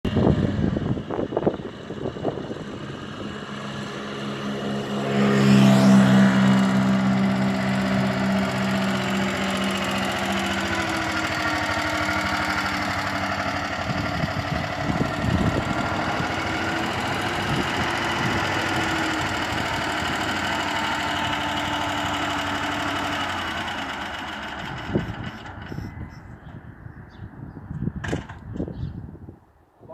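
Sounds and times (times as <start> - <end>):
single-cylinder engine passing: 0.1 - 28.0.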